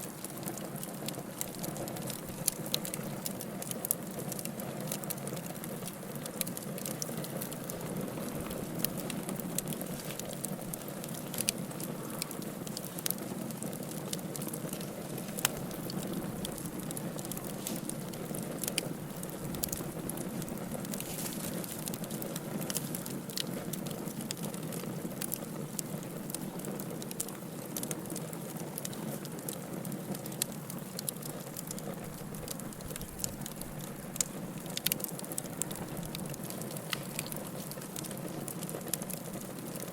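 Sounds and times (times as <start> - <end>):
fire crackling and popping: 0.0 - 39.9
low rush of flame: 0.2 - 27.9.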